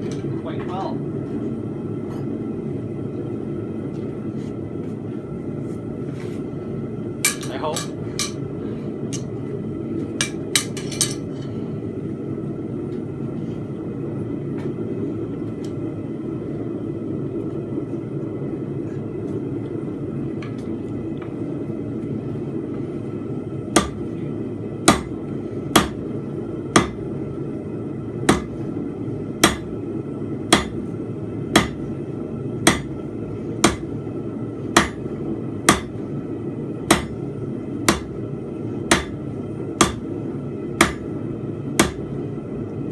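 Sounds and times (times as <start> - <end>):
continuous low roar: 0.0 - 42.9
hammer striking steel on anvil: 10.2 - 11.2, 23.8 - 24.0, 24.9 - 25.2, 25.8 - 26.0, 26.7 - 27.0, 28.3 - 28.6, 29.4 - 29.7, 30.5 - 30.8, 31.6 - 31.8, 32.6 - 33.0, 33.6 - 33.9, 34.8 - 35.0, 35.7 - 36.0, 36.9 - 37.2, 37.9 - 38.1, 38.9 - 39.2, 39.8 - 40.0, 40.8 - 41.1, 41.8 - 42.0.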